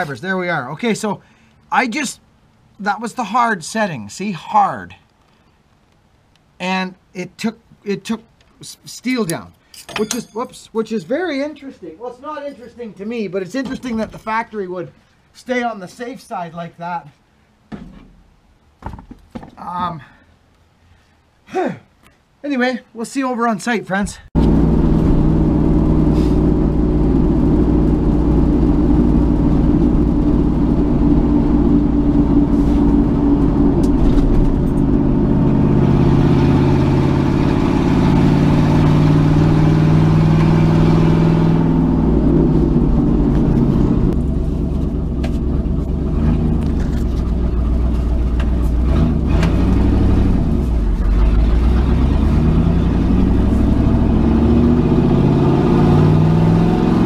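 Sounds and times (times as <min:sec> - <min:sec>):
road noise: 0:23.8 - 0:57.0
vehicle engine from inside cab: 0:24.4 - 0:57.0.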